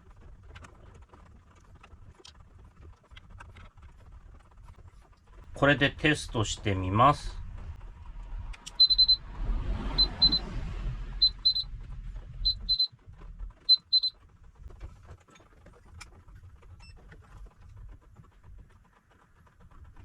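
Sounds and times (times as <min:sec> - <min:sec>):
low hum: 0:00.0 - 0:20.0
short high electronic beeps: 0:08.7 - 0:09.2, 0:10.0 - 0:10.4, 0:11.2 - 0:11.7, 0:12.4 - 0:12.9, 0:13.6 - 0:14.2.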